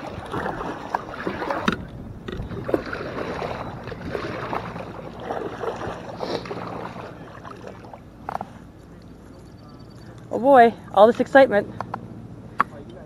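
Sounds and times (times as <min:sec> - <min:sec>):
paddle splashing water: 0:00.0 - 0:09.7.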